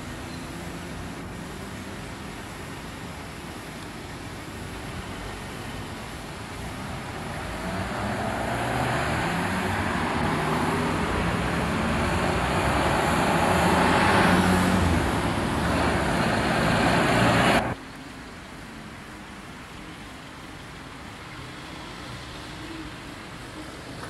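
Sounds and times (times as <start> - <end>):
vehicle engine approaching: 6.5 - 17.8.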